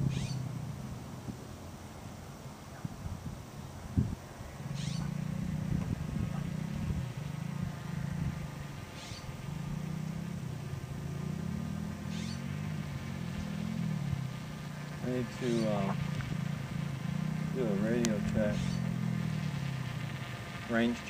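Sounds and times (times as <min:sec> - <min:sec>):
model airplane motor running: 0:14.4 - 0:21.0.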